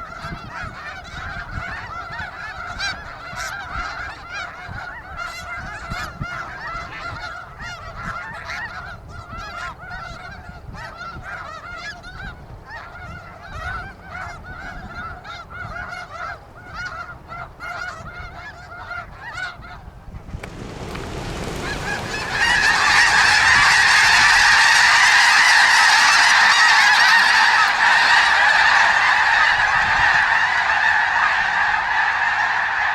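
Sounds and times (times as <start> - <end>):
snow geese honking: 20.4 - 32.9.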